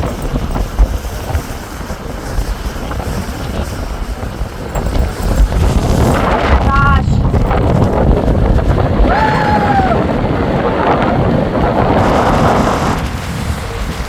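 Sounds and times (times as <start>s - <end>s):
lake waves: 0.0s - 14.0s
strong wind buffeting microphone: 0.0s - 14.0s
falling cry: 9.1s - 10.2s.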